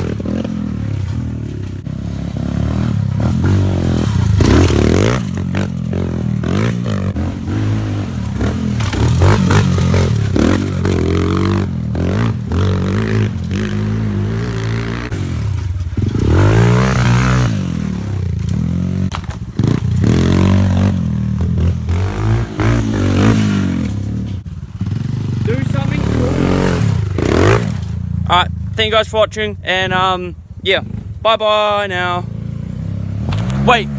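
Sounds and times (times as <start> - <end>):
small motorbike engine revving: 24.8 - 27.9.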